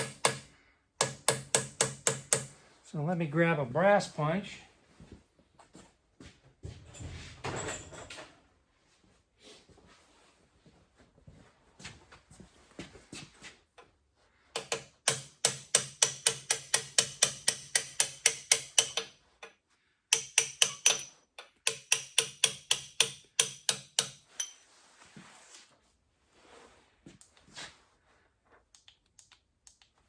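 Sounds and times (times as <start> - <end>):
hammer striking metal punch: 0.0 - 2.6, 14.6 - 19.1, 20.1 - 21.1, 21.7 - 24.5.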